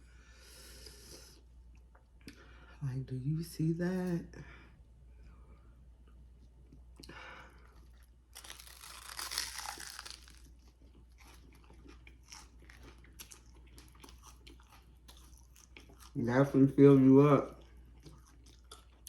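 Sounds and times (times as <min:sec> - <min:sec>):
soft chewing with wet clicks: 0:01.4 - 0:02.5, 0:10.4 - 0:16.2, 0:17.4 - 0:19.0
crunchy bite: 0:08.3 - 0:16.2.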